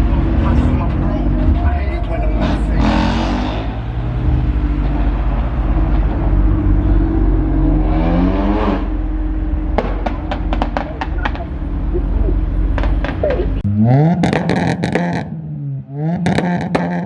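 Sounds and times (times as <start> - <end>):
car engine revving: 0.0 - 17.0
exhaust pops and bangs: 9.7 - 11.5, 12.7 - 13.5, 14.1 - 15.4, 16.2 - 17.0.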